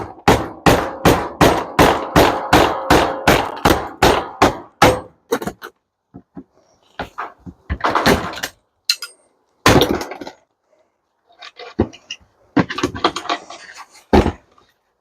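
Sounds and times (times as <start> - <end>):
metal parts clanking and rattling: 7.0 - 10.5, 11.3 - 14.6.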